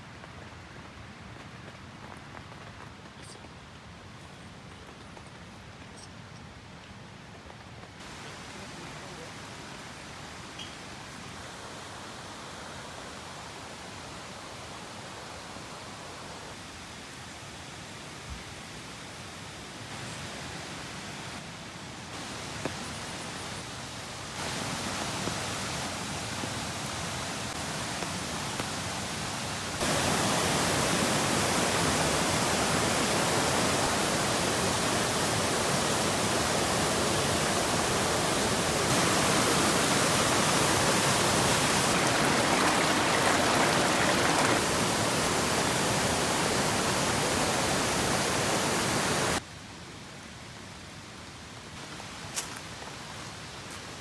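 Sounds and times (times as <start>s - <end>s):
heavy rain falling: 22.2s - 49.5s.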